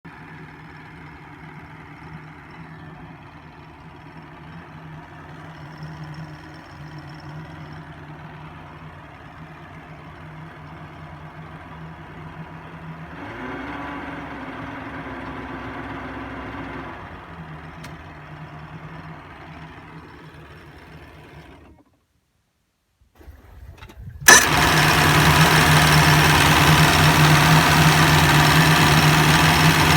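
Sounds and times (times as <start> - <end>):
boat engine starting and idling: 0.7 - 22.0, 23.2 - 29.9
jet boat engine idling: 24.3 - 29.9.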